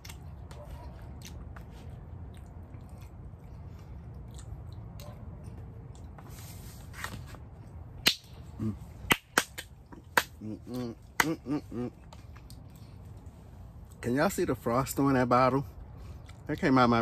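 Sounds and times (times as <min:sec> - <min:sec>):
man chewing food: 0:00.0 - 0:06.8, 0:09.8 - 0:14.0, 0:15.7 - 0:16.6.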